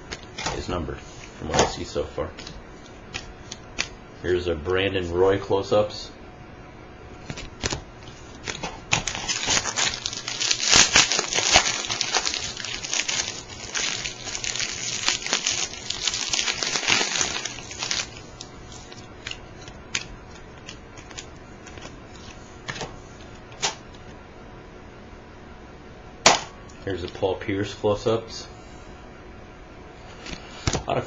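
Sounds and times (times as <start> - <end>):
card pack wrapper crinkling: 7.2 - 22.8
cards clicking: 16.6 - 22.9.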